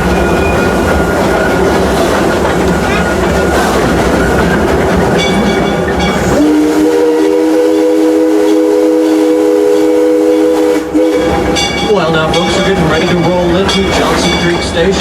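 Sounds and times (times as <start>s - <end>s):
steam train wheels rumbling: 0.0s - 15.0s
steam whistle blast: 6.2s - 11.6s.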